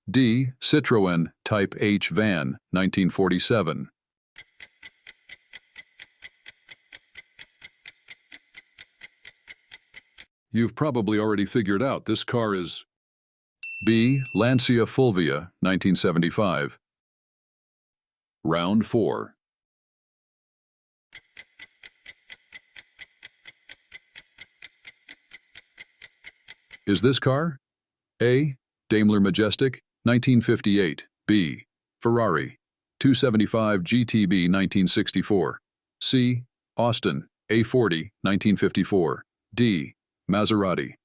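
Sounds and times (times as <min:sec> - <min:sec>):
clock ticking: 0:04.4 - 0:10.3, 0:21.1 - 0:27.0.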